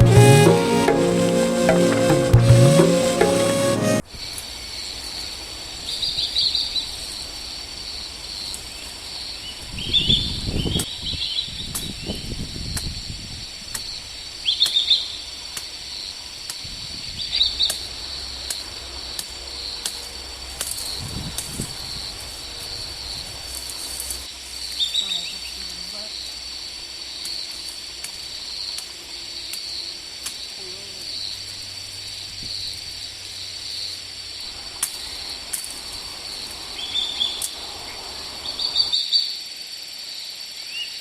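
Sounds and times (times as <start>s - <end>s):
high insect hum: 17.2s - 40.9s.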